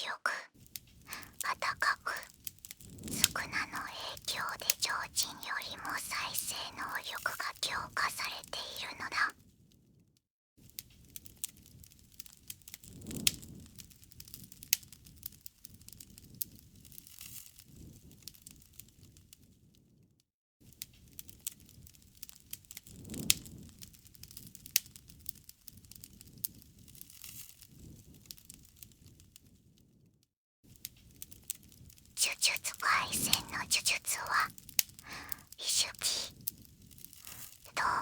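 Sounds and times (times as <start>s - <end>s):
campfire crackling: 0.8s - 9.3s
rustle of flames: 10.6s - 20.0s, 20.6s - 30.1s, 30.7s - 32.2s.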